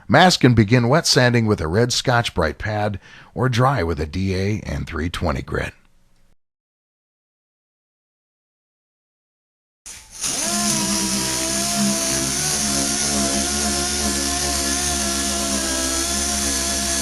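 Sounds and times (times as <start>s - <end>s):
orbital sander whirring: 10.0s - 17.0s.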